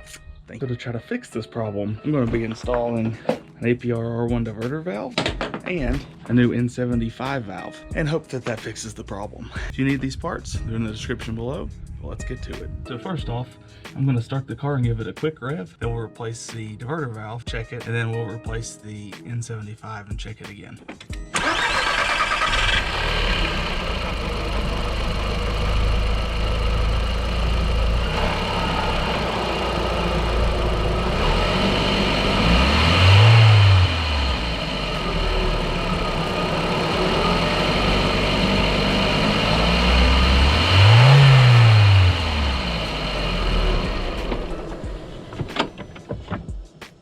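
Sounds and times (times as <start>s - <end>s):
car engine idling and revving: 21.4s - 46.4s.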